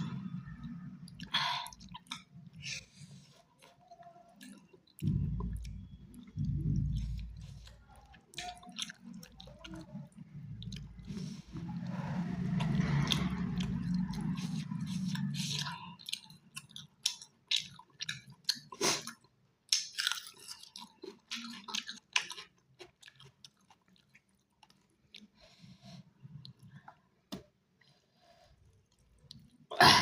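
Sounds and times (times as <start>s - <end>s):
chewing and crunching chicken: 3.4s - 25.5s.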